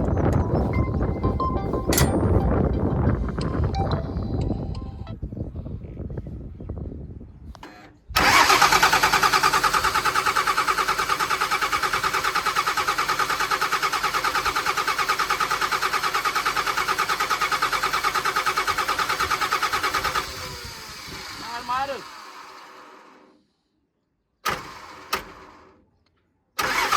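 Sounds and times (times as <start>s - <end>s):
excavator diesel engine running: 8.2s - 23.3s.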